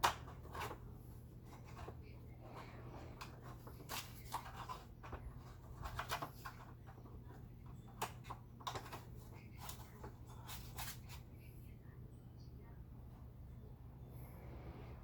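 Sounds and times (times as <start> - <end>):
low hum: 11.8 - 15.0.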